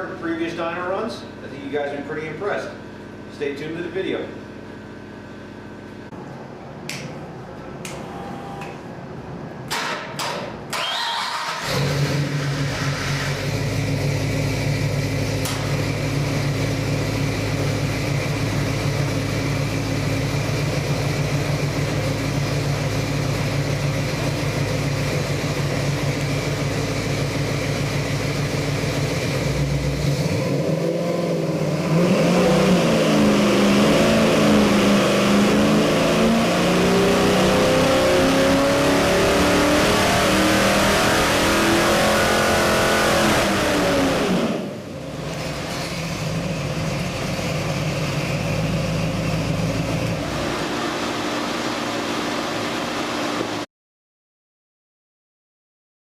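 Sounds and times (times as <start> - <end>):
engine idling and revving: 9.7 - 53.6.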